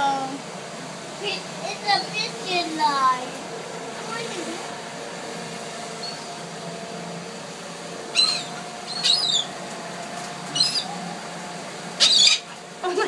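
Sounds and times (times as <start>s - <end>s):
steady background hum: 0.0s - 13.0s
sharp high-pitched bird calls: 8.1s - 9.6s, 10.5s - 10.9s, 12.0s - 12.6s.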